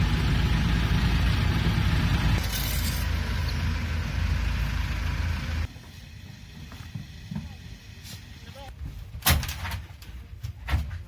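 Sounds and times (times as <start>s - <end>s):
heavy engine humming: 0.0s - 8.7s.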